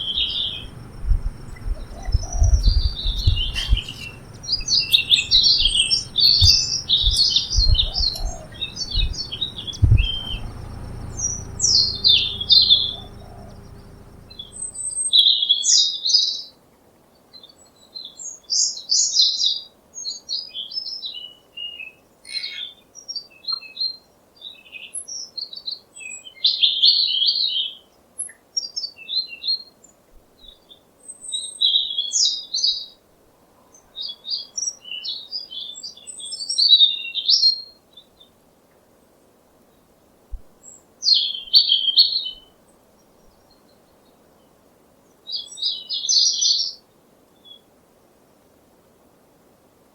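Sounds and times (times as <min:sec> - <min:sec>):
low rumble with thumps: 0:00.0 - 0:14.9
small birds chirping: 0:00.0 - 0:15.0.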